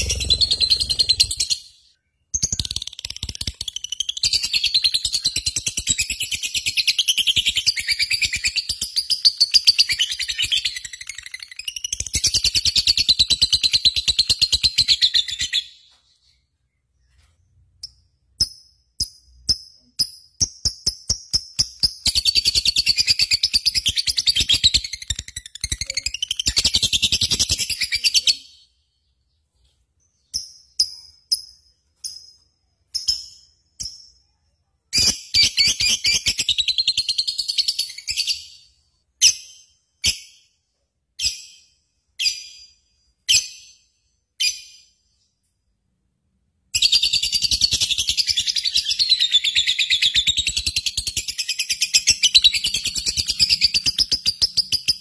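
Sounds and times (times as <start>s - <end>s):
bird chirping chatter: 0.0s - 18.4s.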